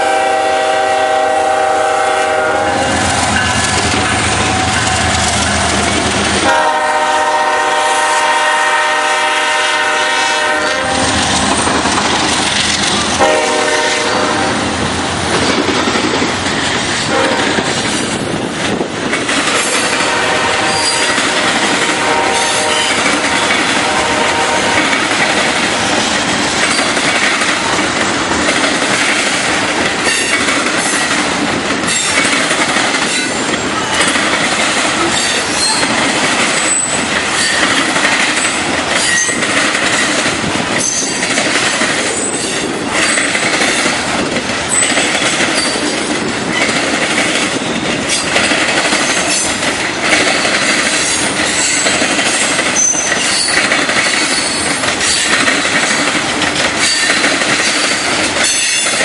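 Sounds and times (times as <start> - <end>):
freight train wheels rumbling on rail: 0.0 - 59.0
wheels clicking over rail joints: 3.0 - 6.6, 11.0 - 13.4, 22.6 - 59.0.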